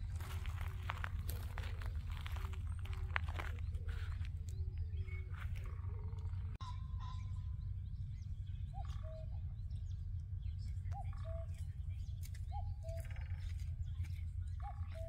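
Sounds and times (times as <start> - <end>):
steady low rumble: 0.0 - 15.0
bird two-note call: 6.6 - 7.8.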